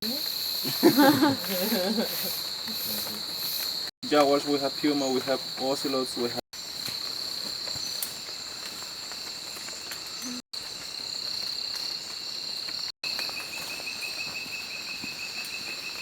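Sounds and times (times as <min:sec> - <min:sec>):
insect rapid pulsed chirping: 0:00.0 - 0:16.0.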